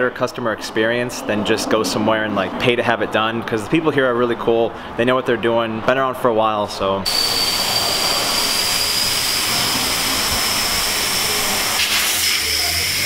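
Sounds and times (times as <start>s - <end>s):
high whine: 7.0s - 13.0s
compressed air hissing: 7.1s - 13.0s.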